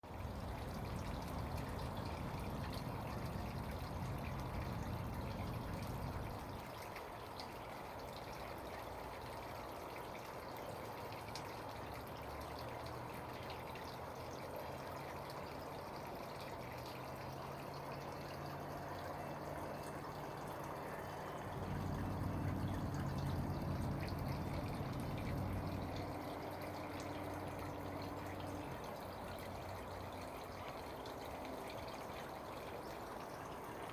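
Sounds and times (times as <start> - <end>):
water trickling in bird bath: 0.0 - 33.9
low hum: 17.7 - 29.4.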